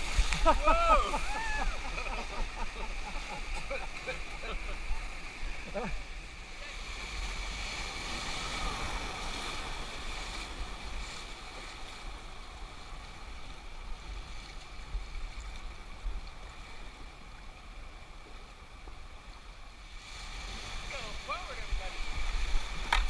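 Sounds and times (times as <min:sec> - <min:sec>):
whitewater river rushing: 0:00.0 - 0:11.3.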